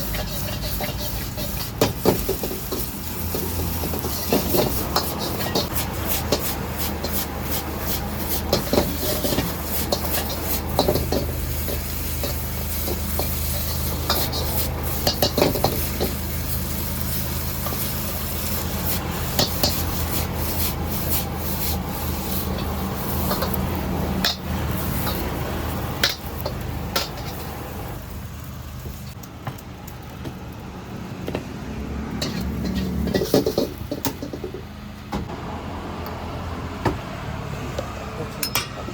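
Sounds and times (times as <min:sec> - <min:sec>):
metal spatula scraping a wok: 0:00.0 - 0:27.8, 0:32.2 - 0:34.4
food sizzling: 0:00.0 - 0:30.1, 0:32.2 - 0:34.4.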